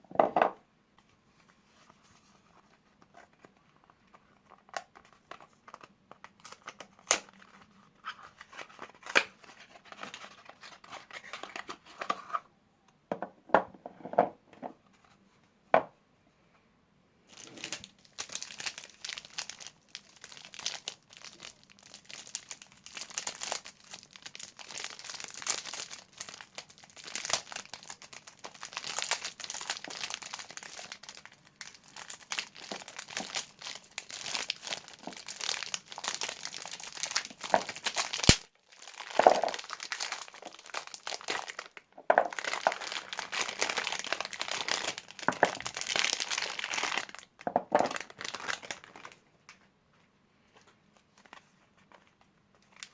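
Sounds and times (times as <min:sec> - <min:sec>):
wrappers crinkling: 0:17.3 - 0:49.2.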